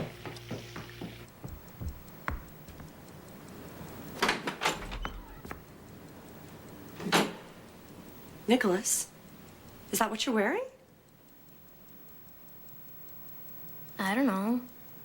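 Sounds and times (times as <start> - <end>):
faint steady ticking: 0.1 - 15.0
knocks: 0.8 - 2.9.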